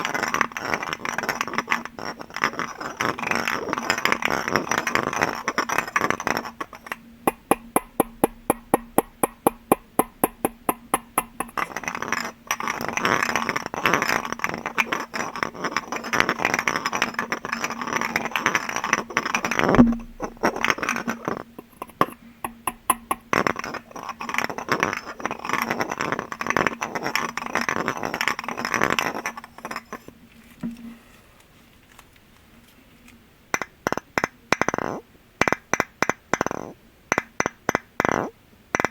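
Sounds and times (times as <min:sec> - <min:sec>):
rapid tapping on glass: 0:00.0 - 0:30.0
faint low hum: 0:02.2 - 0:33.6.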